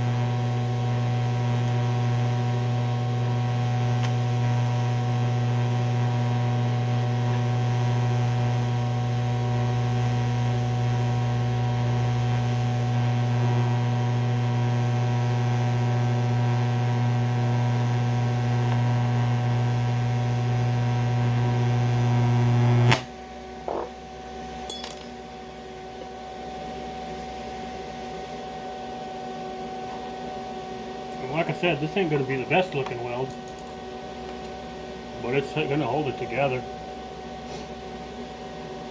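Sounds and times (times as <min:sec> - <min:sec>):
welding machine idle hum: 0:00.0 - 0:23.0, 0:31.0 - 0:38.8.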